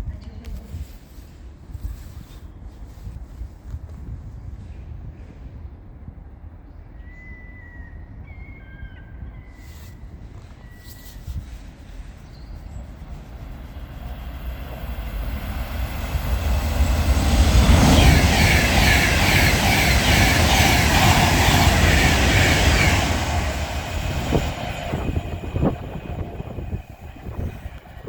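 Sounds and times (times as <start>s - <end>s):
train rumbling past: 9.6s - 28.0s
wheels rattling on rail joints: 11.6s - 28.0s.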